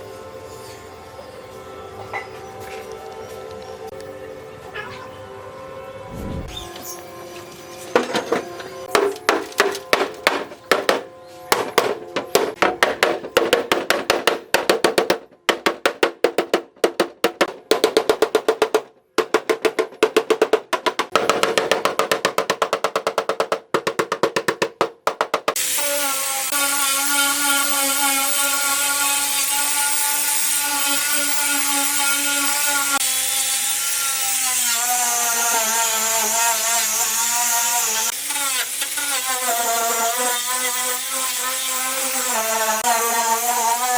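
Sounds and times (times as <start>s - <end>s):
power tool whining: 25.6s - 43.9s.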